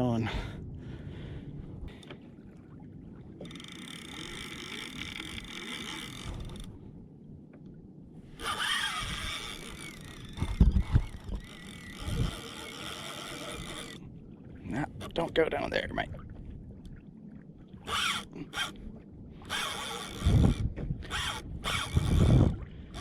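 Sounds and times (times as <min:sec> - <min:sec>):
fishing reel whirring and squeaking: 0:03.4 - 0:06.8, 0:08.4 - 0:14.0, 0:17.8 - 0:23.0.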